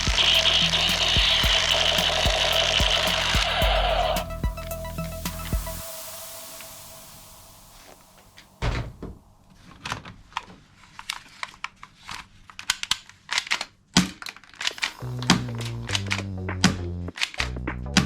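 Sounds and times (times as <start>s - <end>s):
plastic parts clicking and knocking: 11.0s - 15.0s.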